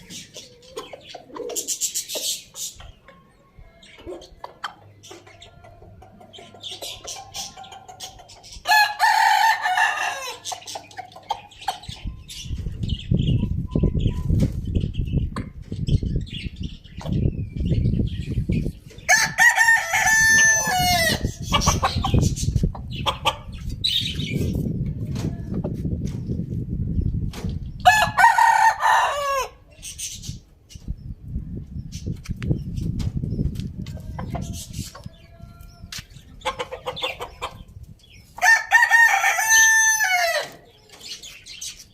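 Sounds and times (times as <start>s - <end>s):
hens clucking: 0.0s - 8.6s, 10.2s - 12.7s, 19.9s - 25.8s, 33.7s - 37.9s
roosters crowing: 5.1s - 11.6s, 19.0s - 22.4s, 27.8s - 29.7s, 38.3s - 41.2s.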